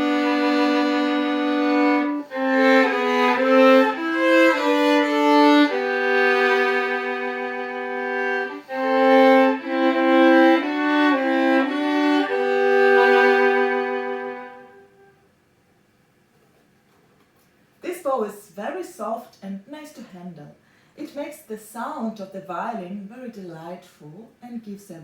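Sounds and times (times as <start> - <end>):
solo violin melody: 0.0 - 15.1.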